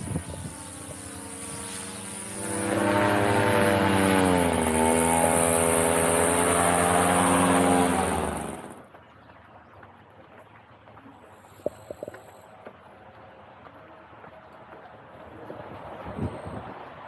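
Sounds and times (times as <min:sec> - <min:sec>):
engine humming: 0:00.0 - 0:09.2.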